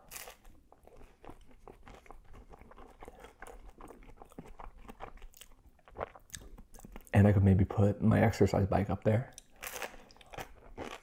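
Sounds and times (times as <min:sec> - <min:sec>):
person biting crispy food: 0:00.0 - 0:06.5, 0:09.6 - 0:11.0.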